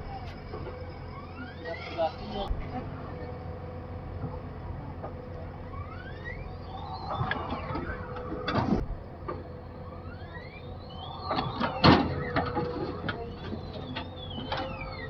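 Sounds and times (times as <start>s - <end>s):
diesel engine running: 0.0s - 15.0s
rising hydraulic whines: 0.0s - 15.0s
loud clunk: 11.2s - 14.8s.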